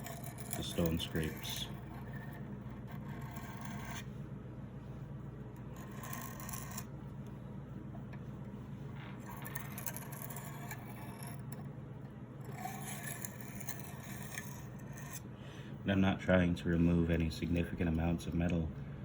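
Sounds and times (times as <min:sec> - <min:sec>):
knife scraping on sharpening stone: 0:00.0 - 0:04.0, 0:05.8 - 0:06.9, 0:09.3 - 0:11.5, 0:12.4 - 0:15.2
steady low hum: 0:00.0 - 0:19.0.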